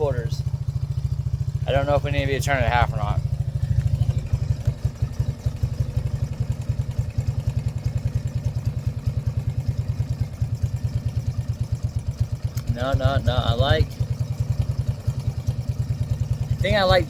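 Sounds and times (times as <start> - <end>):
quad bike engine idling: 0.0 - 17.0.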